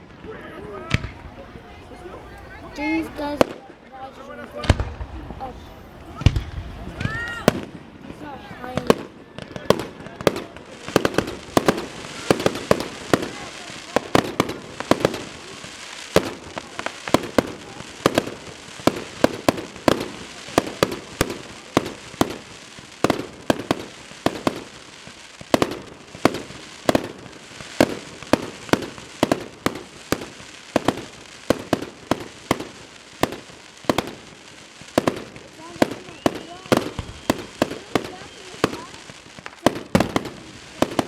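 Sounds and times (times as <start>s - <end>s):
fireworks banging: 0.0s - 41.0s.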